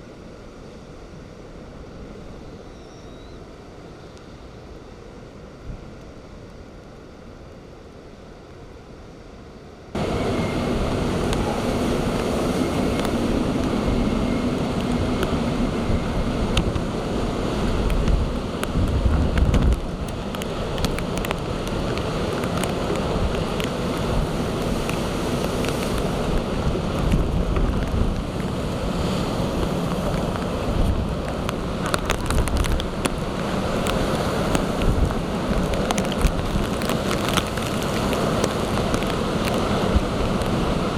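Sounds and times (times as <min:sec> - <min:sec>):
waves crashing: 0:09.9 - 0:40.9
heavy low rumble: 0:10.0 - 0:24.9
wind buffeting microphone: 0:10.0 - 0:40.9.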